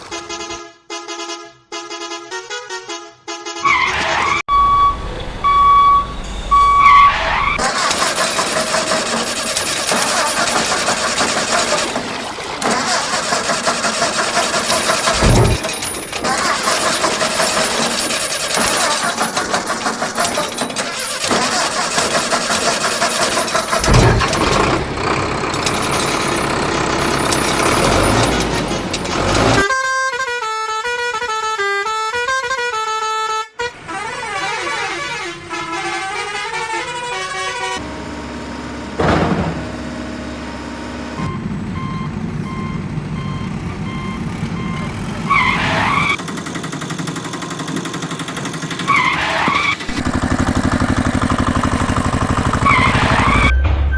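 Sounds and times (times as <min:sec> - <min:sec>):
vehicle engines running: 0:00.0 - 0:00.6, 0:03.7 - 0:29.7, 0:37.8 - 0:53.5
horns honking: 0:00.0 - 0:46.2, 0:47.7 - 0:53.9.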